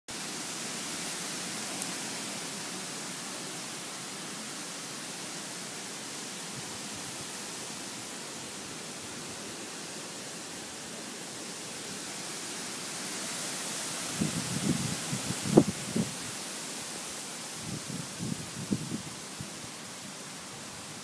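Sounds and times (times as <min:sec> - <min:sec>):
wind blowing: 0:13.8 - 0:16.7, 0:17.4 - 0:20.8.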